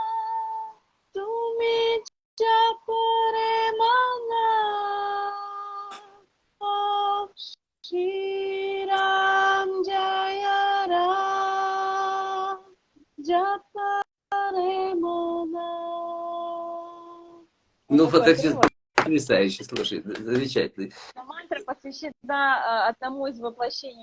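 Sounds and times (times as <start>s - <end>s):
woman singing unaccompanied: 0.0s - 17.5s.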